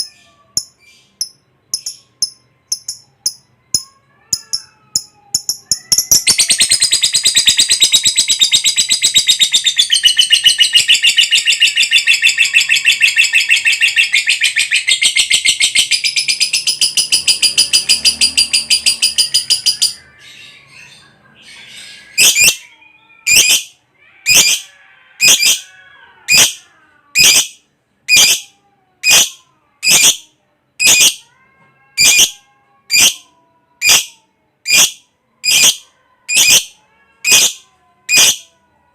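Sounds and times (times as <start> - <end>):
bird shrieking: 21.6 - 27.5
lovebird chattering trill: 33.8 - 38.4.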